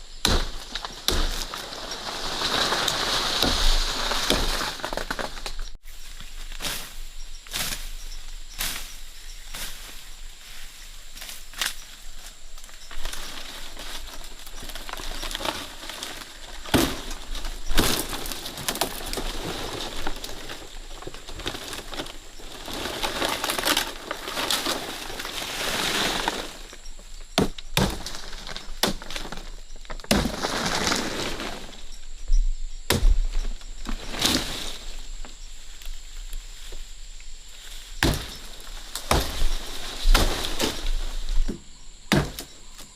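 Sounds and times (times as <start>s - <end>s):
rustling: 0.0s - 32.2s
sharp cracks and knocks: 0.2s - 5.8s, 13.0s - 25.3s, 27.4s - 31.6s, 32.9s - 35.9s, 38.0s - 42.9s.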